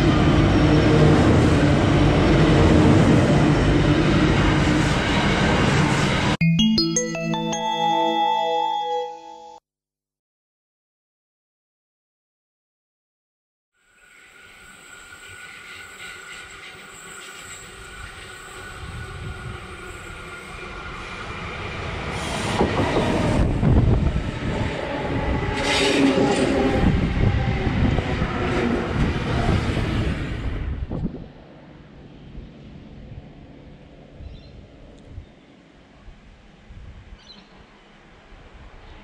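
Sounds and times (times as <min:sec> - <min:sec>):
electric train passing: 0:13.9 - 0:34.0.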